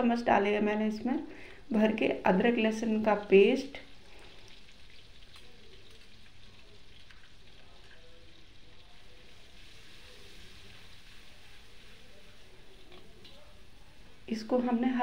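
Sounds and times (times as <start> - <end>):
paste sizzling in hot oil: 3.0 - 15.0.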